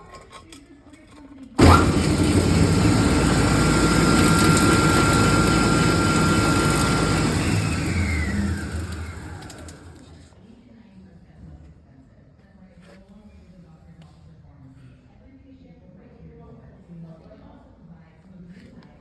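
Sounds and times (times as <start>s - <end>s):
grinder motor whining: 1.6s - 10.2s.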